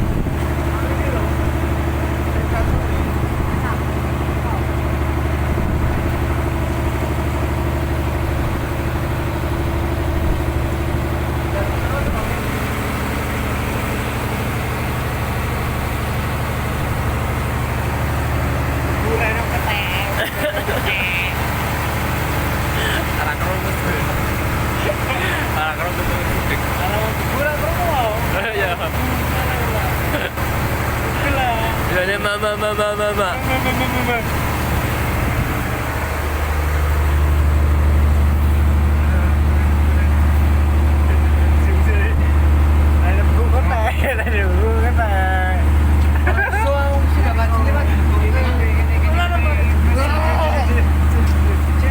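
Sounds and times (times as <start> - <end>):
boat engine droning: 0.0 - 51.9.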